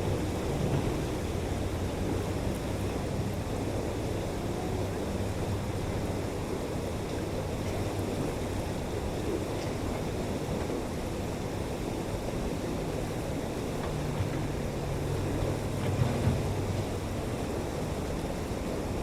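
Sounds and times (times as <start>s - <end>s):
excavator diesel engine running: 13.5s - 18.8s.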